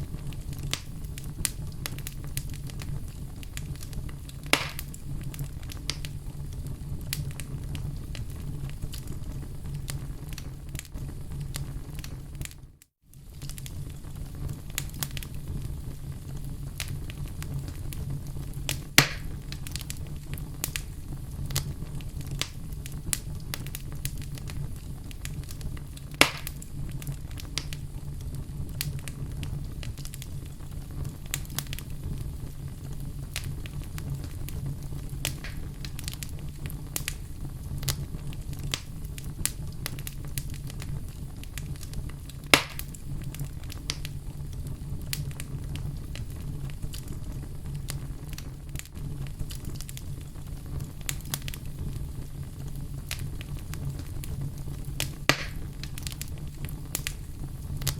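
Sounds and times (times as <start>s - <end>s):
low rumble of flame: 0.0s - 57.9s
wood fire crackling: 0.0s - 57.9s
loud sharp pops: 4.4s - 5.0s, 19.0s - 19.4s, 26.2s - 26.6s, 35.3s - 35.7s, 42.5s - 43.0s, 55.0s - 55.8s.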